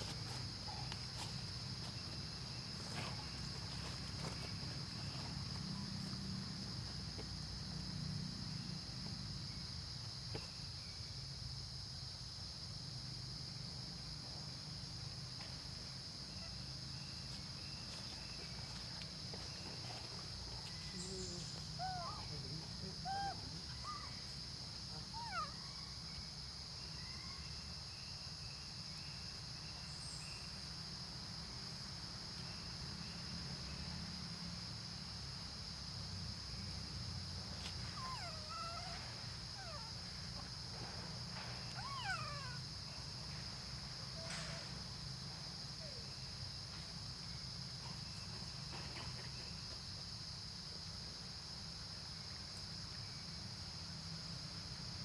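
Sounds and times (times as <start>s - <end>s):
baby monkey squealing: 21.8s - 22.2s, 41.8s - 42.6s.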